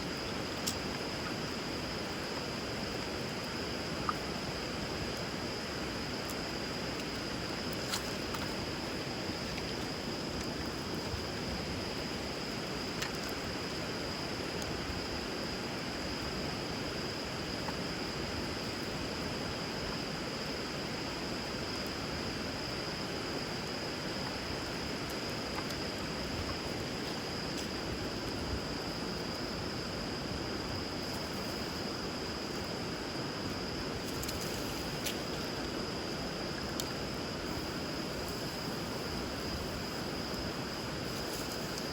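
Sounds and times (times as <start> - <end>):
flowing river water: 21.5 - 41.9.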